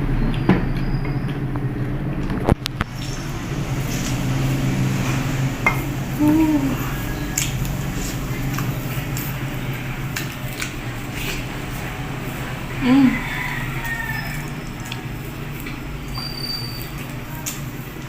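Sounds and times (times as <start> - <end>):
chewing: 6.2 - 18.0.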